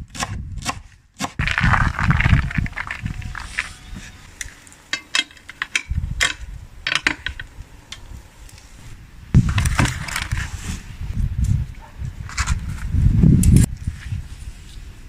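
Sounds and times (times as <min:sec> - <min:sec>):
hard objects clicking and knocking: 0:04.9 - 0:07.5.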